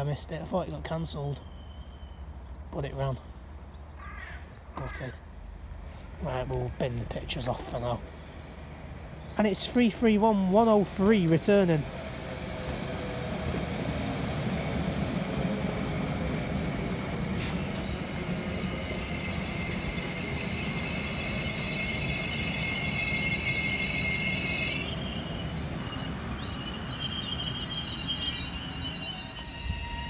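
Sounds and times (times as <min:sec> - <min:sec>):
train low rumble: 0:04.6 - 0:30.0
high-pitched whines: 0:16.7 - 0:30.0.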